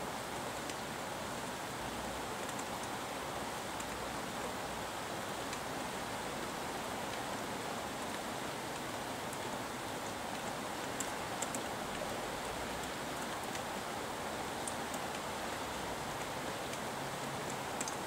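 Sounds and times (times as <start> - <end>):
steady rain hiss: 0.0 - 18.0
raindrops ticking: 16.1 - 18.0.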